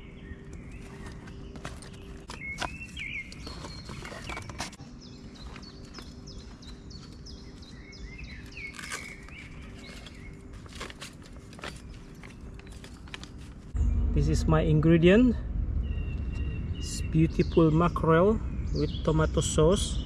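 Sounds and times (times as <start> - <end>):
small birds chirping: 0.0 - 20.0
steady low hum: 0.0 - 20.0
bags and bike gear rustling: 0.6 - 13.8.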